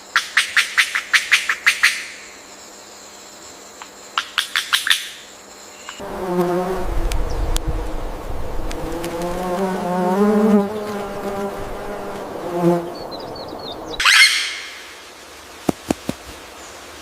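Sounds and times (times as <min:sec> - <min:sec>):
insect buzzing: 0:05.6 - 0:14.0
loud descending bird call: 0:11.8 - 0:15.0
faint high bird chirps: 0:12.8 - 0:14.9.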